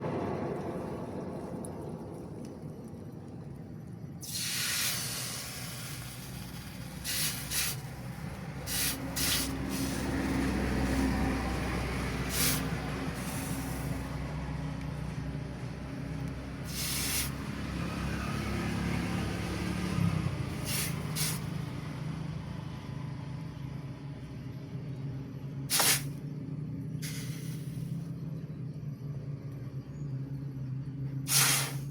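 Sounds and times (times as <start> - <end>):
low machine hum: 0.0 - 4.3, 22.7 - 31.9
short bursts of hissing: 4.2 - 10.2, 12.3 - 14.1, 16.6 - 17.4, 20.6 - 21.5, 25.7 - 26.2, 27.0 - 28.0, 31.3 - 31.9.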